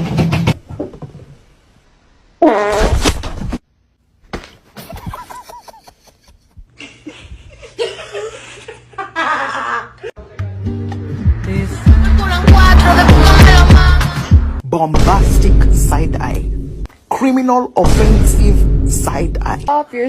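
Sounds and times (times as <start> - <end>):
loud buzzing fart: 2.4 - 3.2.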